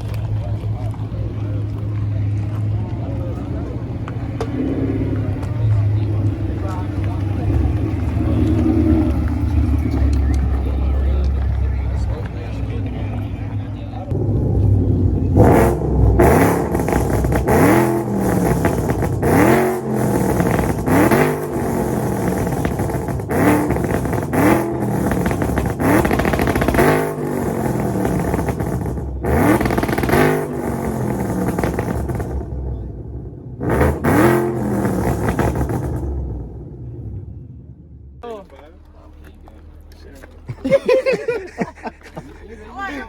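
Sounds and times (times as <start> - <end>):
car engine revving: 0.0 - 38.2.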